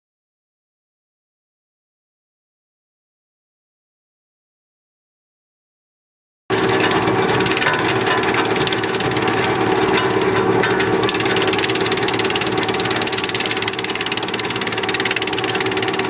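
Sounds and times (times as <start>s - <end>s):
wood chipper clattering: 6.5s - 16.0s.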